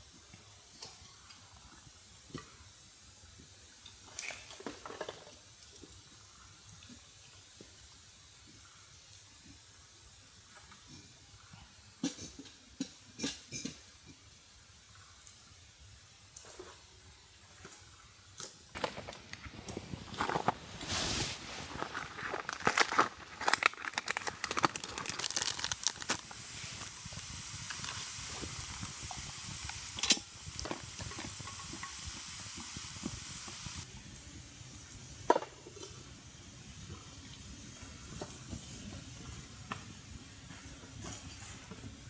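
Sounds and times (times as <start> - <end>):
food crackling and sizzling: 17.6 - 42.0.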